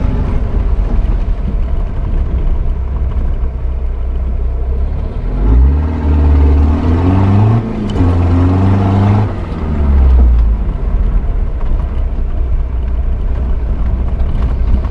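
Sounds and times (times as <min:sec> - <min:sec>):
diesel engine revving: 0:04.4 - 0:11.8.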